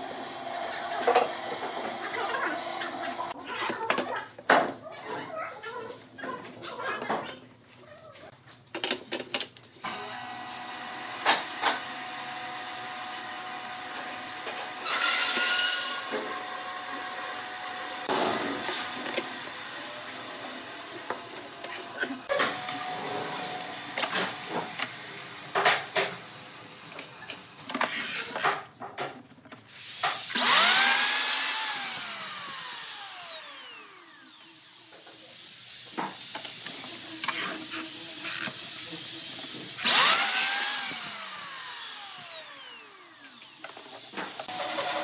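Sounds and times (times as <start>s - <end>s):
power tool motor whine: 9.8s - 25.7s, 30.0s - 35.1s, 36.0s - 45.0s
knocks and clatter of tools: 26.9s - 30.2s.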